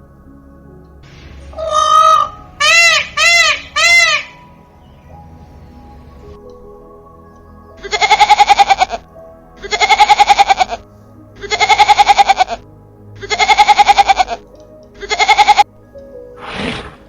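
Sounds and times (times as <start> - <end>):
background music: 0.0 - 17.0
fluttering animal call: 16.4 - 17.0.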